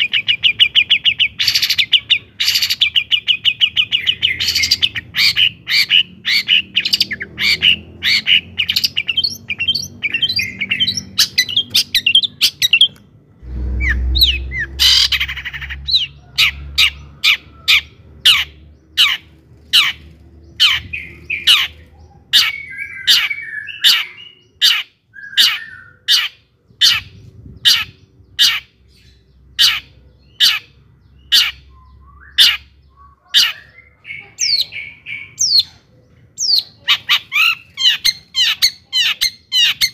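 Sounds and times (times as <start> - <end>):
bird singing chattering notes: 0.0 - 13.1, 13.8 - 39.9
low rumble: 12.3 - 22.1.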